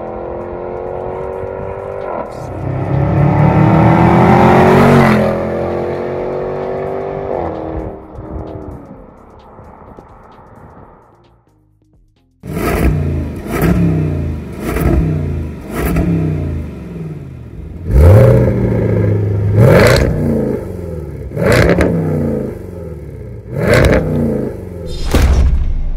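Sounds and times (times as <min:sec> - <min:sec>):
engine revving: 0:00.0 - 0:08.0, 0:12.4 - 0:25.0.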